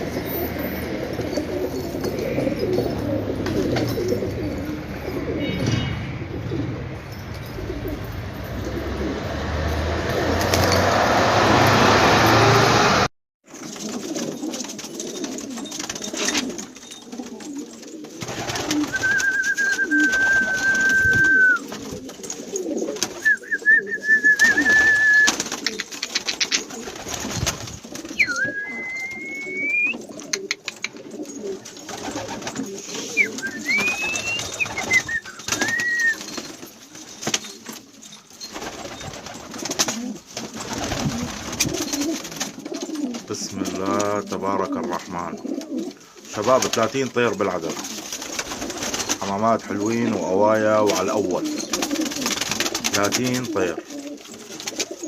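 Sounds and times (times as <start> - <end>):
pigeons cooing: 0.0 - 11.0, 13.6 - 55.0
whistled notes: 18.8 - 21.7, 23.2 - 25.4, 28.1 - 30.0, 33.0 - 36.4.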